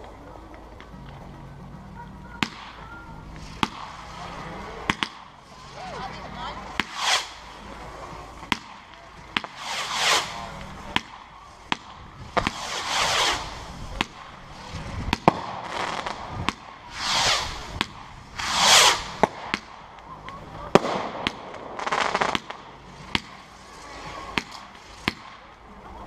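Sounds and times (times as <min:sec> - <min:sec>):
fireworks bangs: 0:02.3 - 0:25.6
falling whooshing sweeps: 0:03.4 - 0:08.4, 0:09.5 - 0:19.6.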